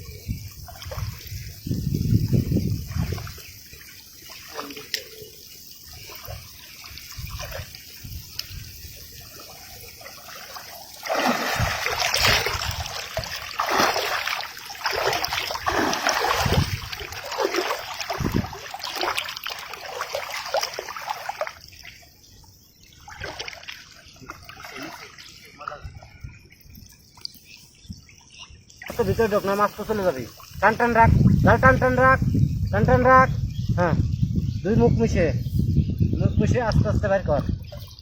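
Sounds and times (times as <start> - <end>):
river water splashing: 0.6 - 1.7, 2.6 - 22.2, 22.8 - 26.0, 28.8 - 32.1.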